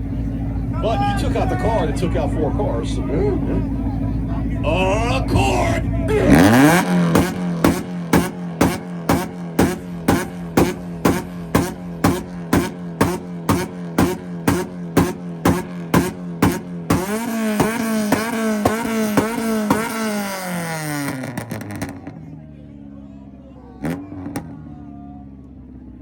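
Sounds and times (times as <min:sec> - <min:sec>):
car engine revving with pops: 0:06.1 - 0:22.2, 0:23.8 - 0:24.6.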